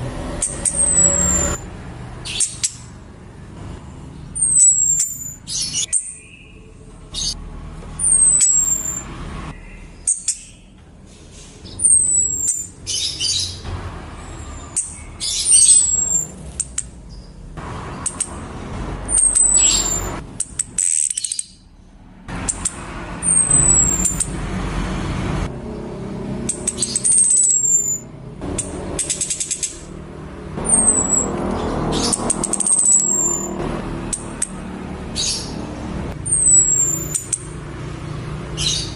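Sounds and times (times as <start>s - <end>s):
harsh chattering bird notes: 0.0s - 3.0s, 4.1s - 7.4s, 8.0s - 10.7s, 11.6s - 21.7s, 22.3s - 24.5s, 25.5s - 38.9s
bird whistling downward: 0.4s - 1.6s, 4.4s - 6.5s, 8.0s - 9.1s, 11.8s - 13.4s, 14.8s - 16.3s, 19.1s - 20.2s, 23.2s - 24.3s, 26.7s - 28.1s, 30.6s - 33.6s, 36.3s - 37.4s.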